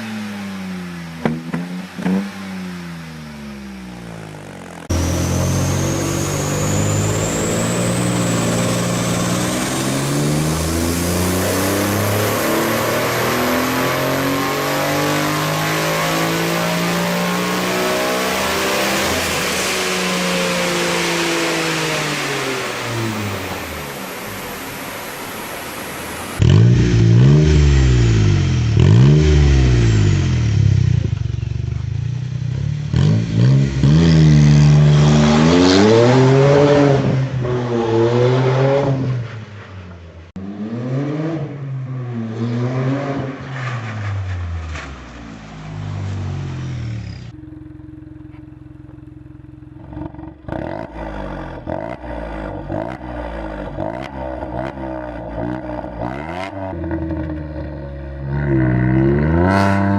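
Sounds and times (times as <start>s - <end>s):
car engines revving hard: 0.0s - 31.2s, 32.4s - 39.5s, 40.3s - 47.3s, 49.8s - 59.9s
engine running steadily: 47.0s - 50.5s.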